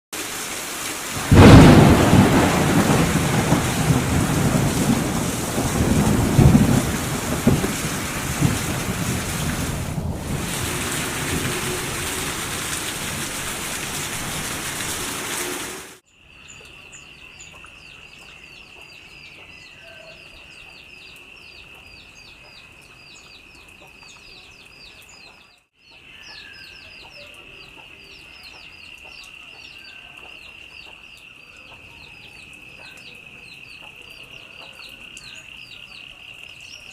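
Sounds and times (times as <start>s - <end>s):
heavy rain: 0.2s - 16.0s
thunder clap rumbling: 1.2s - 16.0s.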